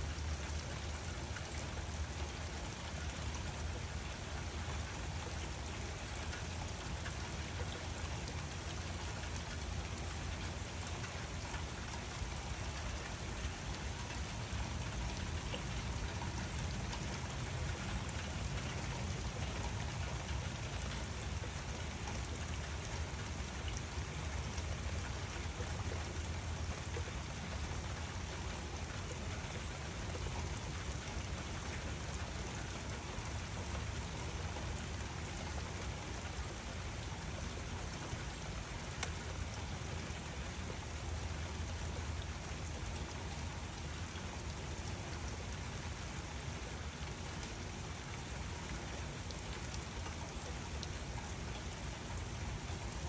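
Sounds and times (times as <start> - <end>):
rain pattering: 0.0 - 53.0.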